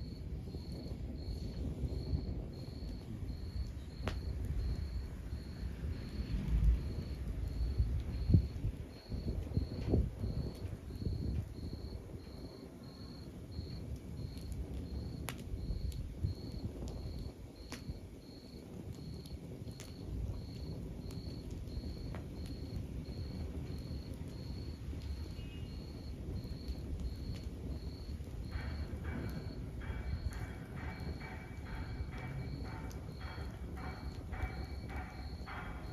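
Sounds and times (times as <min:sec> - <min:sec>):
log fire crackling: 0:00.0 - 0:35.9
steady high chirping: 0:23.2 - 0:35.9.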